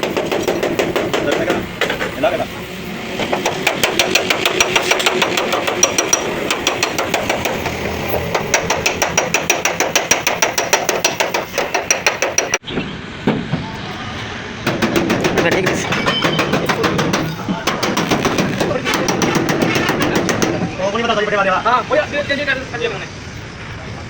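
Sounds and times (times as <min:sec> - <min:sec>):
hammer strokes on sheet metal: 0:14.7 - 0:20.6.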